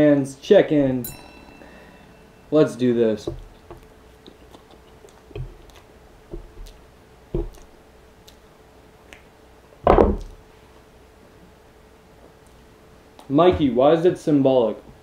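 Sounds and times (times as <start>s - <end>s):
wet chewing and mouth smacks: 4.1s - 6.8s.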